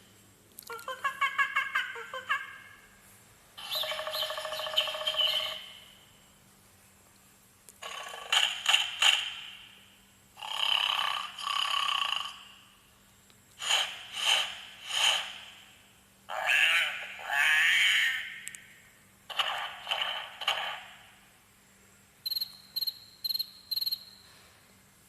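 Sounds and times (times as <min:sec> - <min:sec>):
recorded animal calls from speaker: 0:00.6 - 0:02.9, 0:03.6 - 0:06.0, 0:16.3 - 0:18.5.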